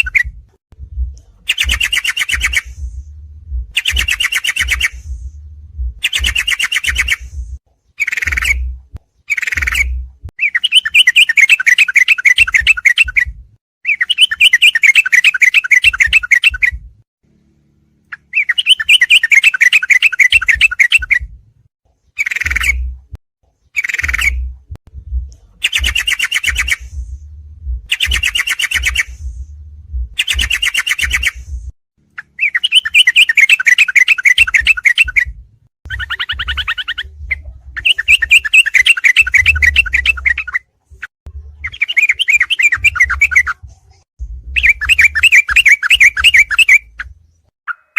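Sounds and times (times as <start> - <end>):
low rumble: 0.3 - 1.8, 2.6 - 4.1, 4.7 - 6.4, 7.2 - 7.6, 8.5 - 9.0, 24.3 - 25.6, 26.8 - 27.9, 29.0 - 30.2, 31.4 - 31.7, 36.4 - 37.8, 43.5 - 45.2.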